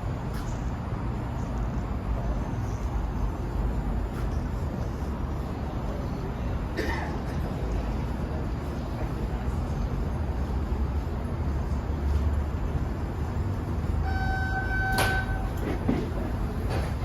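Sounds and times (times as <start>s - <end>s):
subway train rumbling: 0.0s - 17.0s
sharp clunk: 14.9s - 16.1s.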